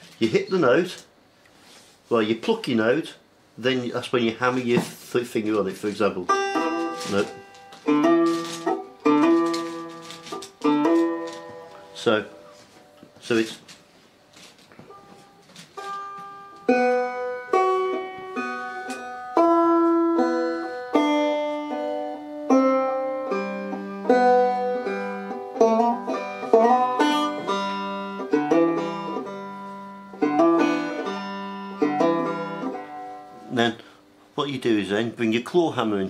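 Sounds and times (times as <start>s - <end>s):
low banjo string droning: 5.4s - 13.7s, 14.9s - 33.9s
banjo picking single notes: 5.5s - 13.4s, 14.9s - 34.0s.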